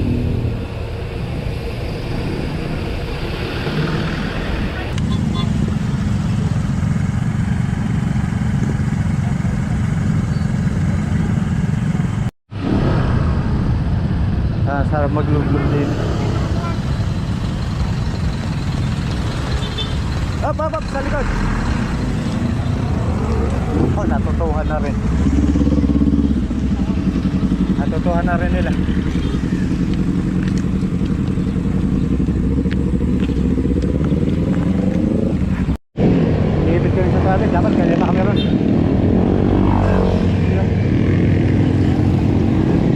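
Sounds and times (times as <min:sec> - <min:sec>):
road and vehicle noise: 0:00.0 - 0:42.9
motorcycle engine running: 0:22.0 - 0:35.7.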